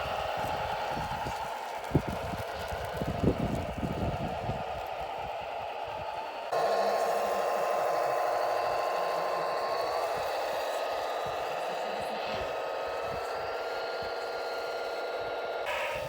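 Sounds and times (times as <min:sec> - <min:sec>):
simulated diesel engine through speaker: 0:00.0 - 0:16.0
thin whine: 0:00.0 - 0:16.0.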